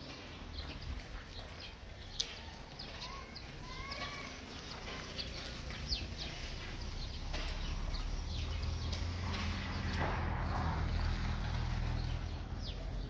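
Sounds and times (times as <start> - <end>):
small birds chirping: 0.0 - 13.0
low rumble: 7.0 - 13.0.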